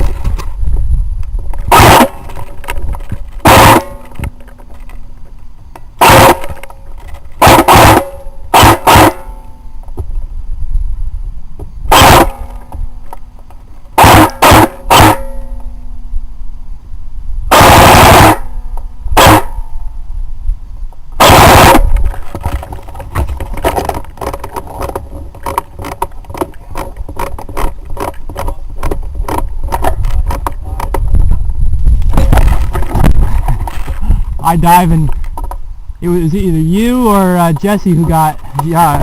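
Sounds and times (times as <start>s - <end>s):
airsoft gun bursts: 1.7s - 2.2s, 3.4s - 4.2s, 6.0s - 6.6s, 7.4s - 9.3s, 11.9s - 12.5s, 14.0s - 15.3s, 17.5s - 18.5s, 19.2s - 19.6s, 21.2s - 21.9s.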